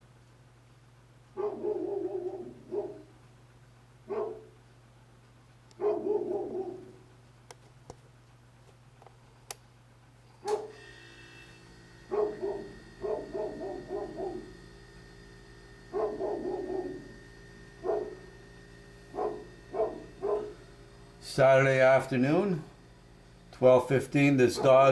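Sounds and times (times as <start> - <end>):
dog barking: 1.4 - 3.1, 4.1 - 4.6, 5.8 - 7.0, 10.4 - 10.8, 12.1 - 14.5, 15.9 - 17.1, 17.8 - 18.3, 19.1 - 20.6, 24.6 - 24.9.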